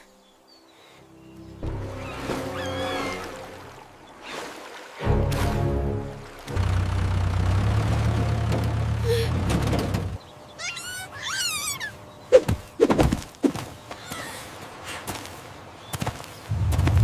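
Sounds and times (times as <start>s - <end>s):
tractor engine running: 5.4s - 10.3s.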